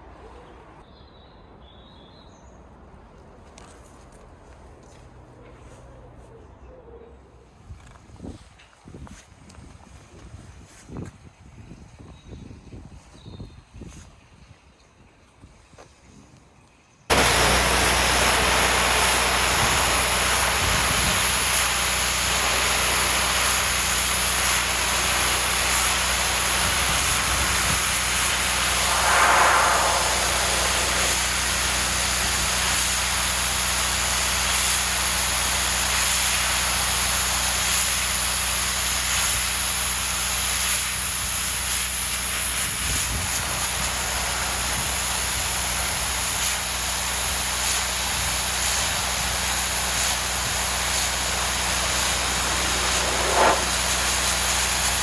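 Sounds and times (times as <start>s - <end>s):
high-pressure water jet hiss: 17.1s - 55.0s
engine hum: 27.2s - 32.3s.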